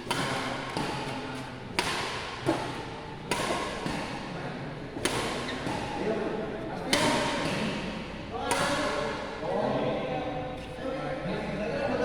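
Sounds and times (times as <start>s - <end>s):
rackets striking shuttlecock: 0.0s - 4.3s, 4.9s - 9.4s.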